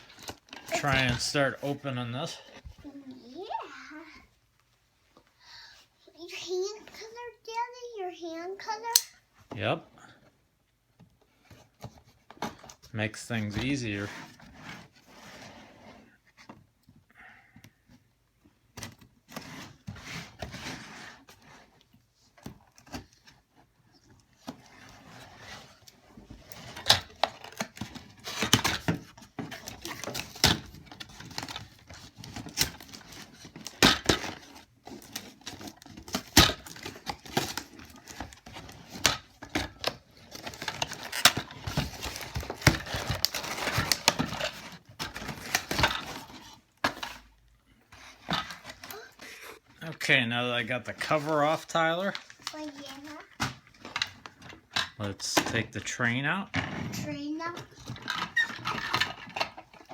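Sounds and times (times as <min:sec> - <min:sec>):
cardboard and plastic packaging tearing: 0:24.4 - 0:47.3.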